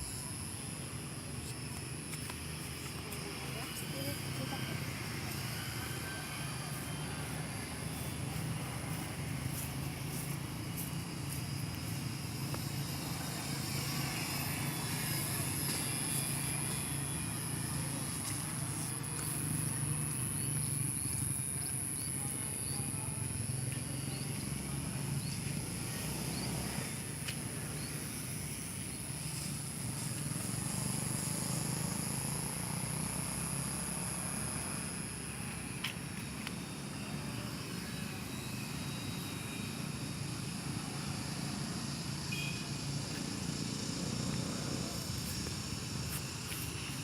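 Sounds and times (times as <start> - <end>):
model airplane motor whine: 11.4 - 20.1.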